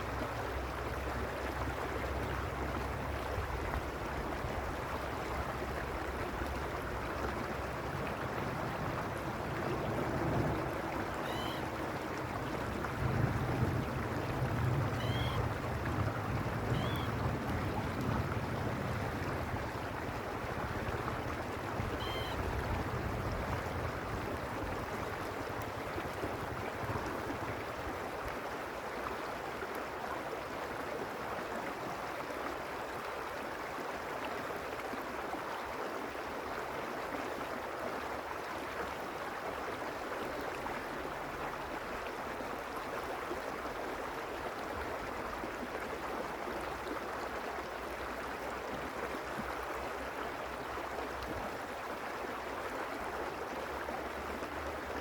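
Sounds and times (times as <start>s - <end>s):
stream water rushing: 0.0s - 55.0s
faint high chirp: 11.2s - 11.7s, 15.0s - 15.4s, 16.7s - 17.1s, 22.0s - 22.4s.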